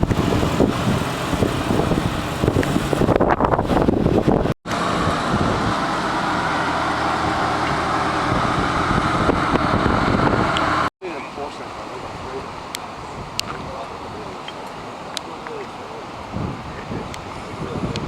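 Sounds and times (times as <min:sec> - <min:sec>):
sports car engine running: 0:00.0 - 0:10.9.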